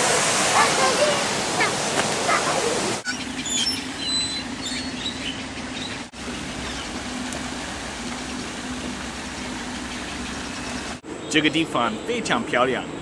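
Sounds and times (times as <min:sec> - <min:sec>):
waterfall rushing: 0:00.0 - 0:03.2, 0:06.1 - 0:11.0
birds chirping and whistling: 0:03.0 - 0:12.2
steady low hum: 0:03.2 - 0:11.2.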